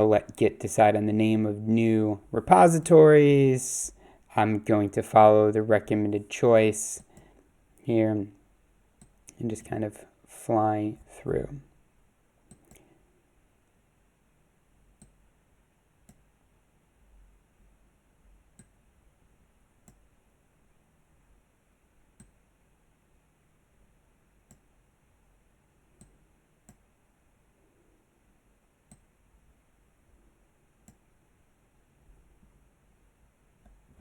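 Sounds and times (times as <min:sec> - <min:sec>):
computer mouse clicking: 0:12.4 - 0:12.9, 0:14.9 - 0:15.2, 0:16.0 - 0:16.3, 0:18.5 - 0:18.8, 0:19.8 - 0:20.1, 0:22.1 - 0:22.5, 0:24.4 - 0:24.8, 0:26.0 - 0:26.9, 0:28.8 - 0:29.2, 0:30.8 - 0:31.1.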